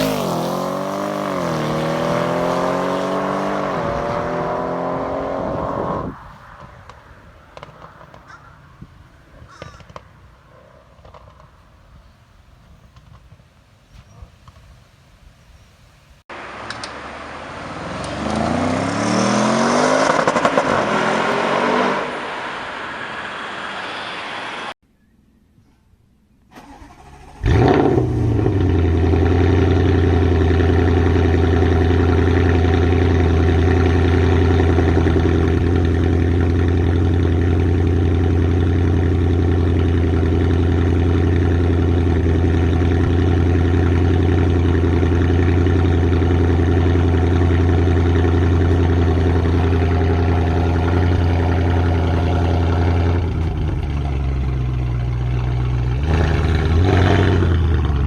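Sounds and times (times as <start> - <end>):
car engine starting and idling: 0.0 - 11.6, 26.5 - 58.0.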